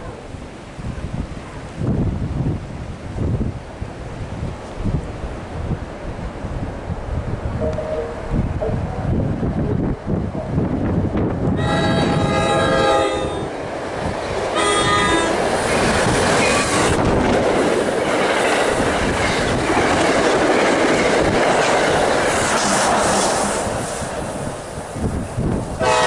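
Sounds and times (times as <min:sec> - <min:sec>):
train horn blasts: 0:07.6 - 0:09.8, 0:11.5 - 0:13.5, 0:14.6 - 0:15.4, 0:25.8 - 0:26.0
train wheels rushing on rails: 0:08.3 - 0:26.0.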